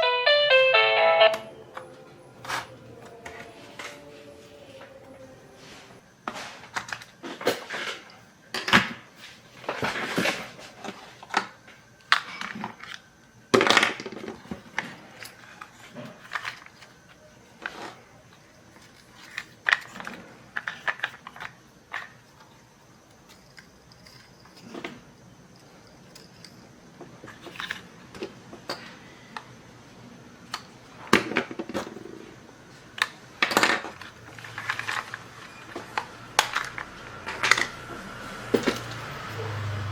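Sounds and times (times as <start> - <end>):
plastic toy parts clicking and rattling: 13.6 - 17.9, 18.7 - 27.9, 33.0 - 37.7.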